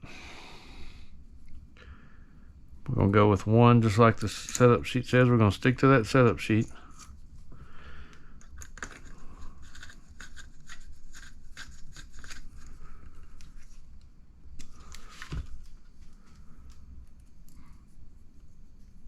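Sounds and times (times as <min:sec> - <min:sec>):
small parts clicking and scraping: 0:08.4 - 0:13.8.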